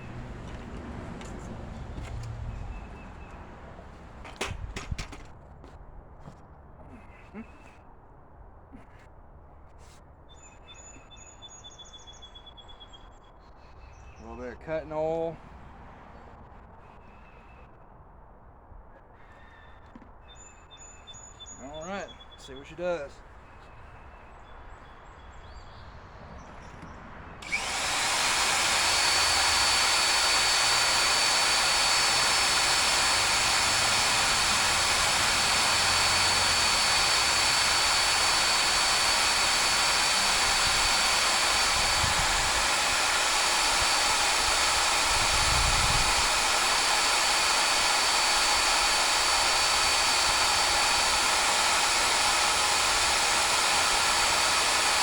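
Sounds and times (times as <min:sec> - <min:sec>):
power drill whining: 0:27.4 - 0:55.0.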